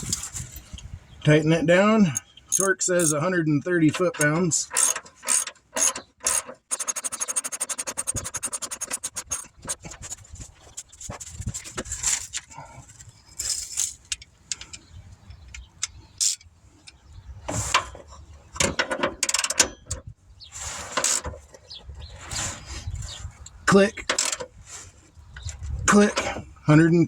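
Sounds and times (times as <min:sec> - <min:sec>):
tools clanking and scraping: 0:02.1 - 0:03.2, 0:03.8 - 0:23.2
ratchet wrench clicking: 0:02.5 - 0:03.2, 0:04.2 - 0:09.5, 0:15.8 - 0:16.4.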